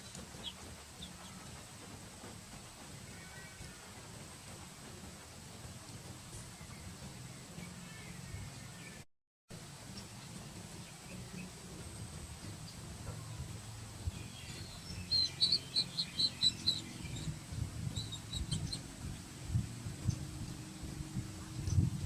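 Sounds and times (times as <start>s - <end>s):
low rumbling: 9.6s - 22.0s
high-pitched chirps: 14.2s - 18.8s.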